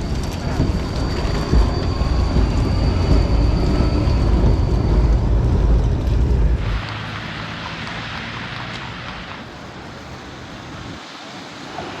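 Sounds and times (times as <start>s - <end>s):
passing traffic hiss: 6.6s - 12.0s.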